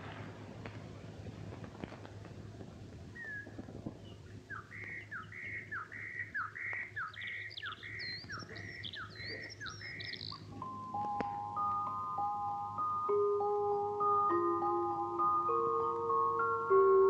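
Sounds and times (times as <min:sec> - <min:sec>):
low steady hum: 0:00.0 - 0:17.0
high chirps: 0:04.5 - 0:17.0
songbird repeating phrase: 0:04.6 - 0:10.5.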